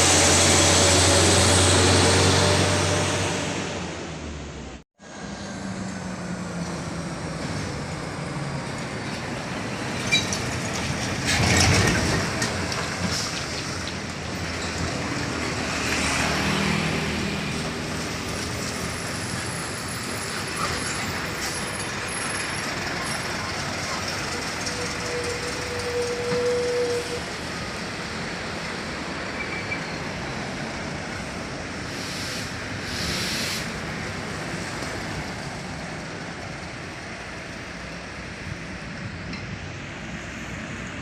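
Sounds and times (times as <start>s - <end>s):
heavy trucks passing: 0.0s - 41.0s.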